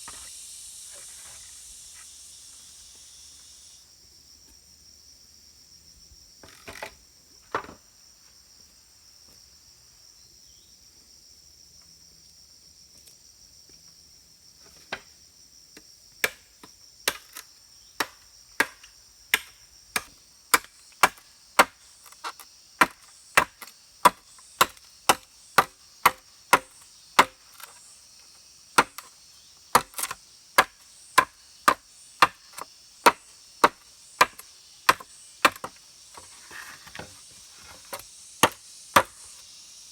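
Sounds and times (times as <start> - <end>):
insects hissing: 0.0 - 39.9
blade chopping wood: 16.2 - 16.5, 17.1 - 17.4, 18.0 - 27.8, 28.8 - 29.1, 29.7 - 39.4.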